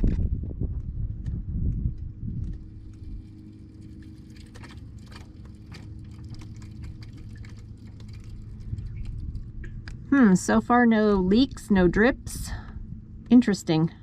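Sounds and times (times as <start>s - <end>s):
water pump humming: 2.7s - 12.2s.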